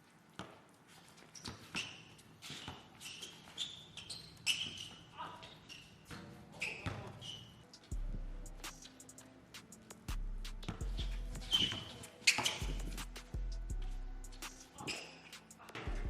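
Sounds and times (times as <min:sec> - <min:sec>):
sneakers squeaking on court: 0:00.1 - 0:07.9, 0:10.6 - 0:13.2, 0:14.4 - 0:16.0
basketball dribbling on court: 0:10.6 - 0:13.2.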